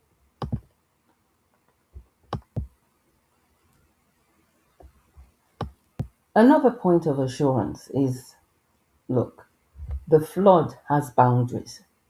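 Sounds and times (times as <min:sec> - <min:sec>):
short clicks and soft knocks: 0:00.4 - 0:02.8.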